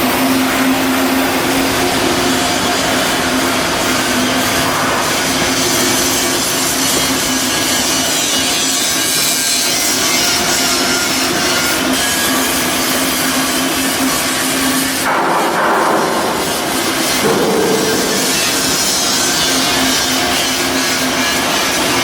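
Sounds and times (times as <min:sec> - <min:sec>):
power tool on metal: 0:00.1 - 0:15.1
steady low hum: 0:15.1 - 0:19.8.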